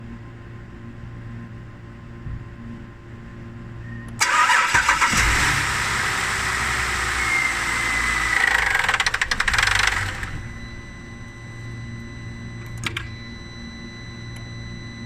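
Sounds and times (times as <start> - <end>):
car mechanical whirr: 3.8 - 15.0
fast mechanical rattle: 7.8 - 10.4.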